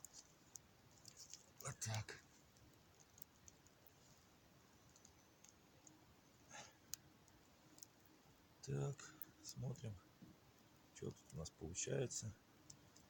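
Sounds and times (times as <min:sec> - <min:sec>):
faint clicks: 0:00.0 - 0:04.2, 0:04.8 - 0:08.1, 0:12.6 - 0:13.0.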